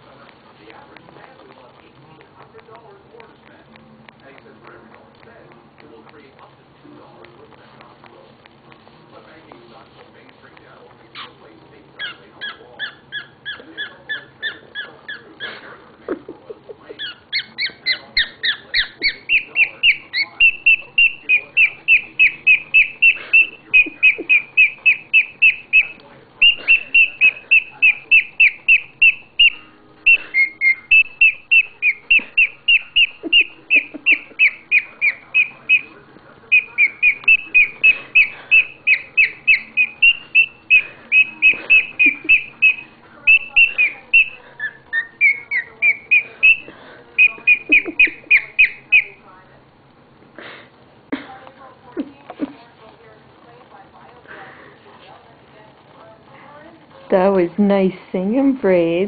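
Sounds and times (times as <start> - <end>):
cockatiel whistled chirps: 17.0 - 49.2.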